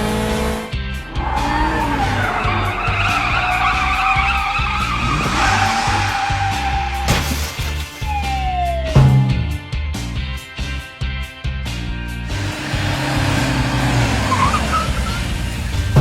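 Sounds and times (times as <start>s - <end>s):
background music with low beat: 0.0s - 16.0s
tyre squeal skid: 1.0s - 8.6s, 13.1s - 16.0s.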